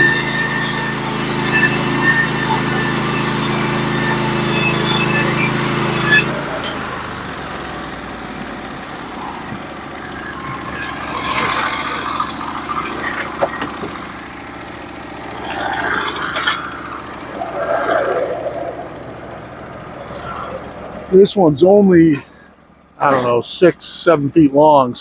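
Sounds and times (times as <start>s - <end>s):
sawmill engine running: 0.0s - 25.0s
clatter and scraping: 8.4s - 21.2s.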